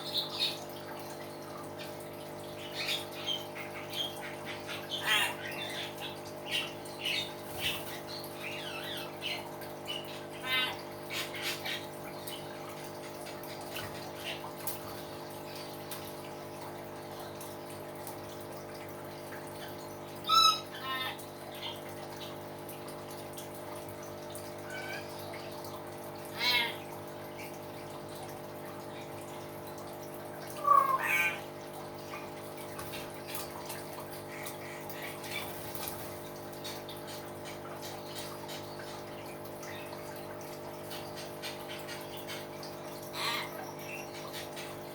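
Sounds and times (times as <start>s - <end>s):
hill myna calling: 30.6s - 31.4s.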